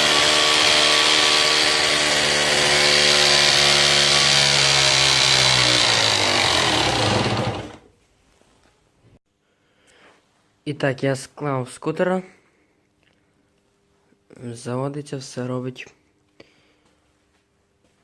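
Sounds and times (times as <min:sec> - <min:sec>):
power tool motor whining: 0:00.0 - 0:07.8.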